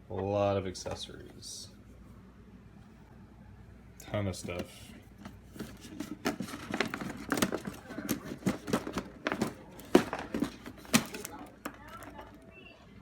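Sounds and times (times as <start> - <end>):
plastic packaging crinkling: 5.6 - 12.4.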